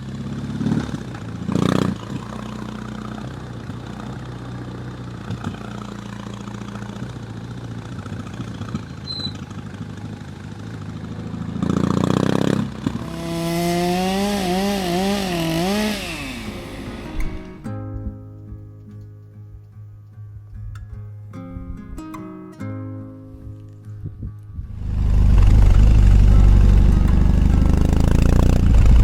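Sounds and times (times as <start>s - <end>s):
motorcycle engine revving: 0.0s - 17.7s, 24.6s - 29.0s.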